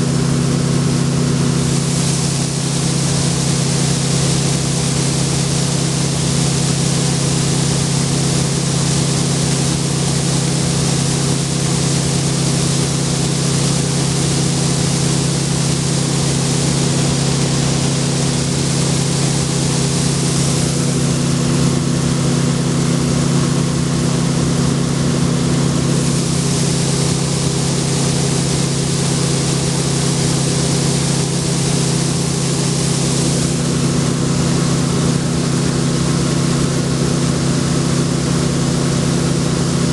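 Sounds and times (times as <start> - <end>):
combine harvester engine hum: 0.0 - 39.9
constant rushing hiss: 0.0 - 39.9.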